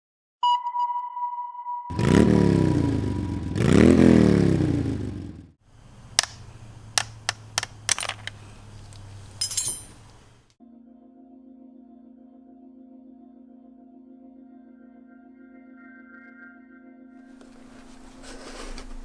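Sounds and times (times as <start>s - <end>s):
motorcycle engine revving and idling: 1.9s - 5.6s
sharp clicks: 6.1s - 8.4s.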